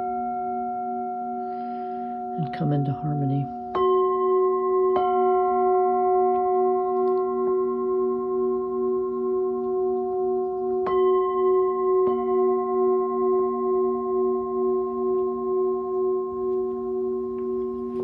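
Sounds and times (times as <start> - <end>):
singing bowls ringing: 0.0 - 2.4, 3.5 - 18.0.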